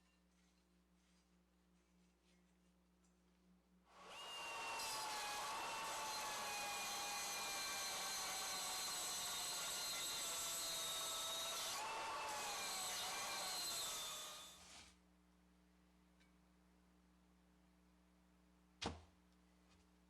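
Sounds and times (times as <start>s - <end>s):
power tool motor running: 4.0s - 14.5s.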